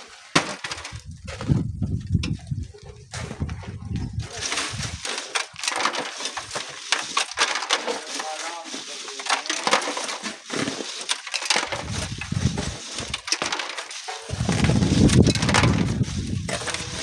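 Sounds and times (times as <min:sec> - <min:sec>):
shovel scraping gravel: 0:00.0 - 0:01.7, 0:03.0 - 0:17.0
wind buffeting microphone: 0:00.9 - 0:05.0, 0:11.8 - 0:13.2, 0:14.3 - 0:17.0.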